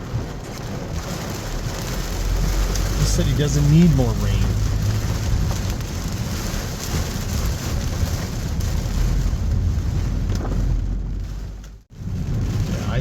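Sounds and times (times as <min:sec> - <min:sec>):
car driving on wet road: 0:00.0 - 0:13.0
heavy rain on a car: 0:00.0 - 0:13.0
road spray: 0:00.6 - 0:09.8.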